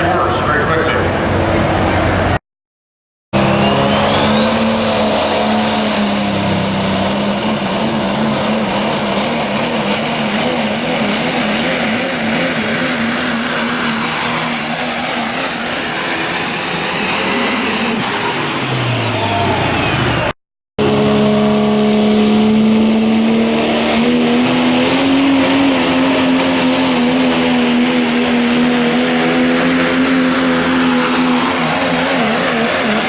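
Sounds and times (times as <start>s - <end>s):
diesel truck engine under load: 0.0s - 2.4s, 3.4s - 33.0s
turbocharger whistle: 3.4s - 33.0s.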